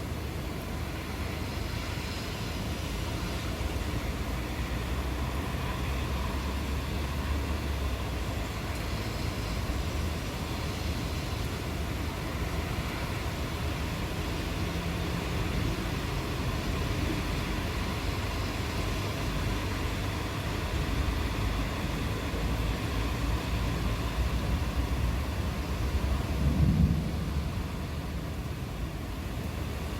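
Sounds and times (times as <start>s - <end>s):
steady rain: 0.0s - 29.9s
distant thunder rumbling: 24.6s - 29.3s.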